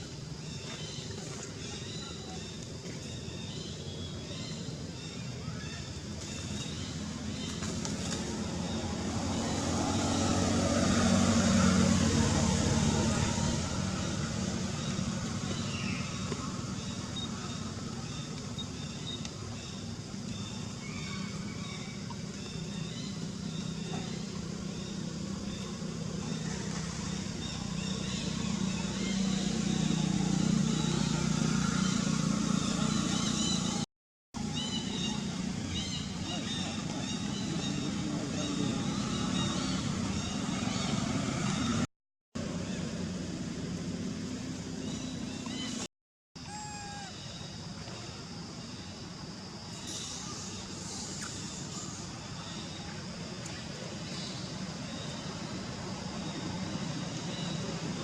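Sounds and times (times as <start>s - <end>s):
vehicle engine humming: 6.7s - 45.9s.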